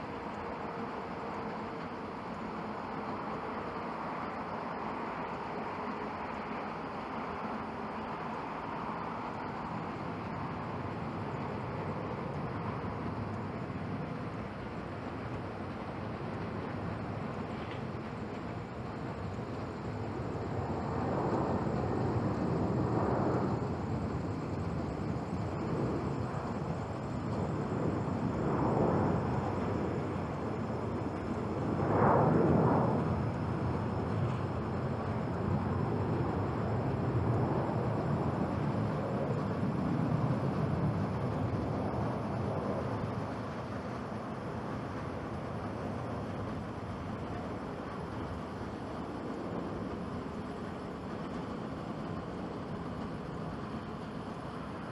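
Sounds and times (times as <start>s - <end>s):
jet engines at take-off: 0.0s - 54.9s.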